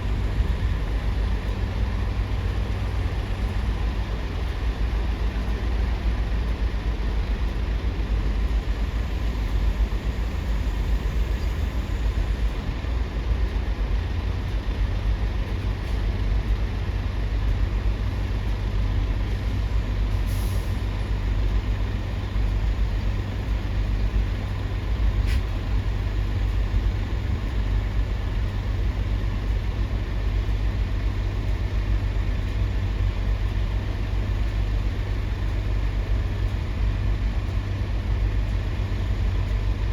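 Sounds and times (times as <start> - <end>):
heavy diesel engines rumbling: 0.0 - 39.9
short high hiss: 25.2 - 25.6.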